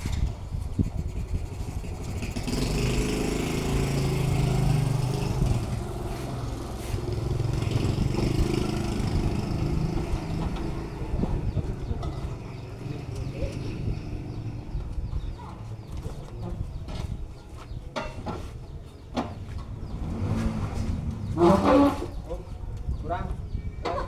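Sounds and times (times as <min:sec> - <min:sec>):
small engine running: 0:01.0 - 0:14.4.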